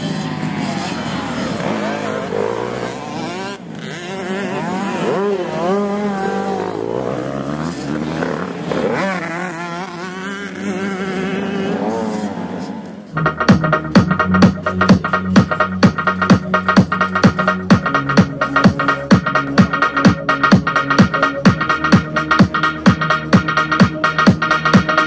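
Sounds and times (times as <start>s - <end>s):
dirt bike engines revving: 0.0s - 25.0s
electronic music beat: 13.1s - 25.0s.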